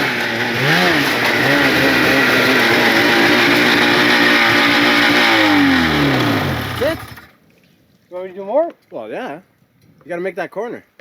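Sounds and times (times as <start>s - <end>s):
snowmobile engine revving: 0.0s - 7.3s.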